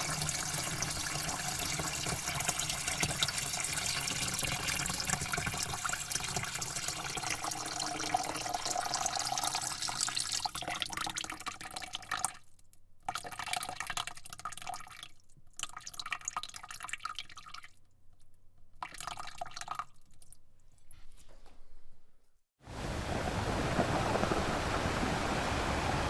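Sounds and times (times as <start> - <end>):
water running and splashing: 0.0 - 10.9.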